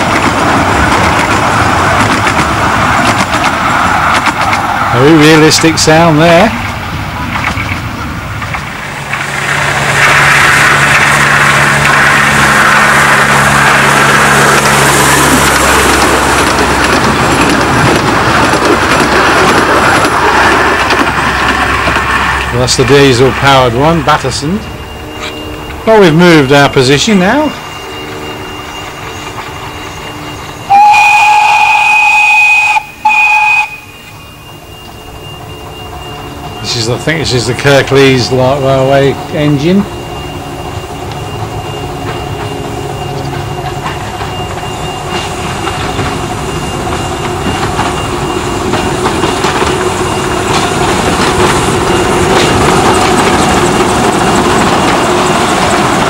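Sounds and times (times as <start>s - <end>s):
locomotive engine hum: 0.0s - 56.0s
train running hiss: 0.0s - 56.0s
locomotive whistle blasts: 27.5s - 36.7s.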